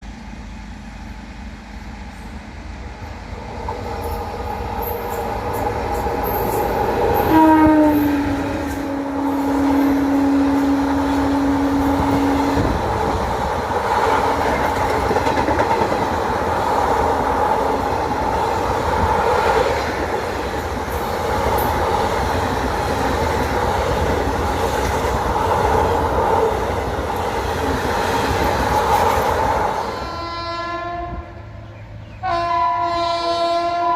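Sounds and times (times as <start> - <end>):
train rumbling: 0.0 - 33.9
locomotive horn: 7.2 - 12.8, 29.8 - 31.4, 32.2 - 33.9
wheels clattering on rails: 12.0 - 29.7.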